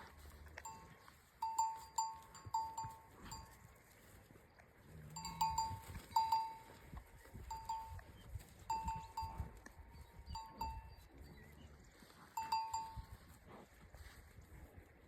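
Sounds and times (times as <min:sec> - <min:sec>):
cow bells clanging: 0:00.0 - 0:03.7, 0:05.1 - 0:11.0, 0:12.4 - 0:13.3.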